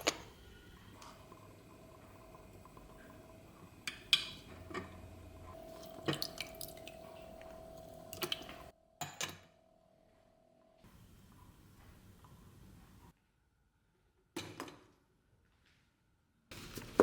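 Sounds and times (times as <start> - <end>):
faint steady hum: 0.0 - 8.9.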